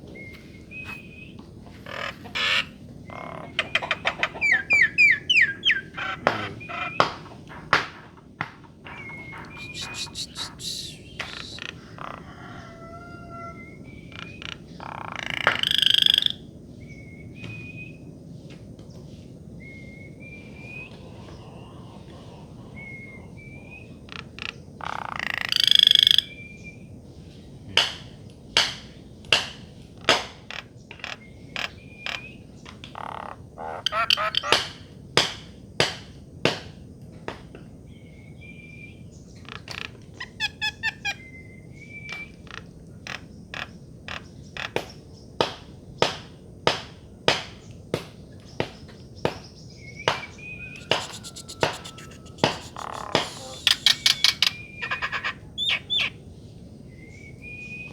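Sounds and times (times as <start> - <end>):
harsh raspy bird calls: 1.7 - 8.0, 8.8 - 16.5, 20.5 - 26.6, 30.4 - 35.0, 39.2 - 45.1, 50.0 - 56.3
bird clicking calls: 1.8 - 7.7, 8.9 - 12.2, 14.1 - 16.4, 30.1 - 34.8, 42.1 - 45.0, 50.1 - 56.2
bird whistling calls: 3.4 - 7.2, 8.9 - 11.8, 33.8 - 34.6, 49.8 - 56.2, 56.9 - 57.9.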